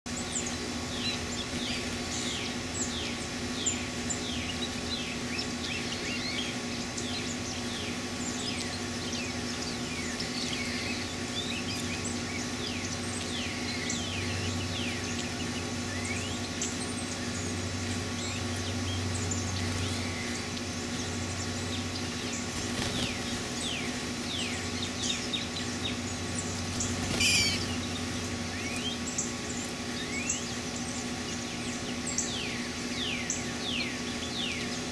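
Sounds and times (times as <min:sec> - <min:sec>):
birds chirping: 0:00.1 - 0:34.9
steady low hum: 0:00.1 - 0:34.9.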